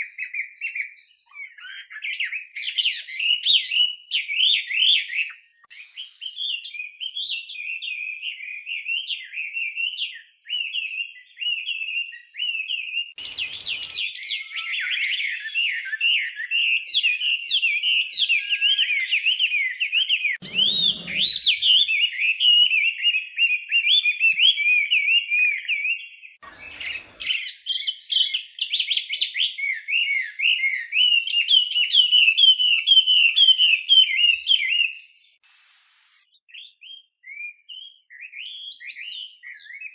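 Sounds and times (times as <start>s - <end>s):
bird singing rapid varied notes: 20.4s - 22.4s.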